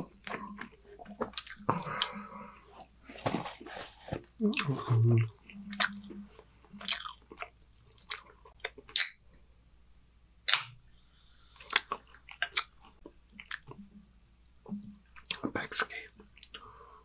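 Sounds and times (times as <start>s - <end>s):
chewing food with wet mouth sounds: 0.0s - 3.4s, 4.1s - 9.3s, 11.6s - 14.0s
mouth smacks: 0.1s - 2.2s, 4.4s - 9.2s, 11.6s - 12.7s.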